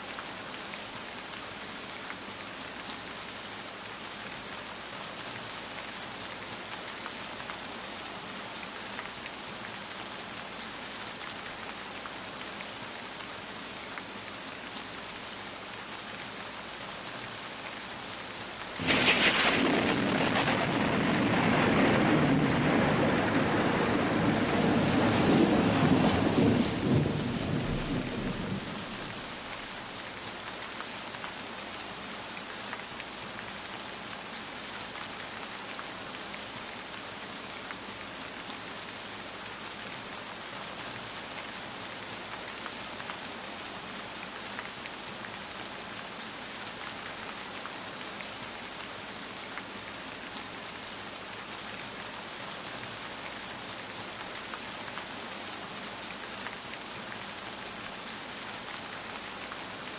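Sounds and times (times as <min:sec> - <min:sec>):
steady rain falling: 0:00.0 - 0:59.9
thunder crack and rumble: 0:18.8 - 0:29.6.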